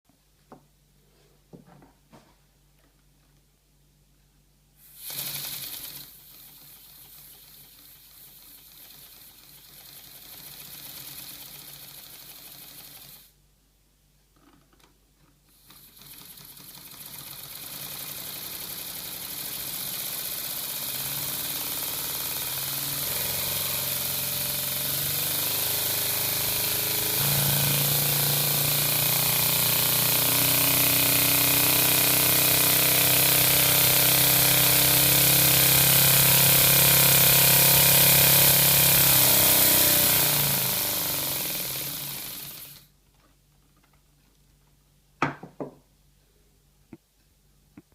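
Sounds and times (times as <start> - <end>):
pneumatic engine whirring with air hiss: 4.8 - 13.4, 15.5 - 42.9.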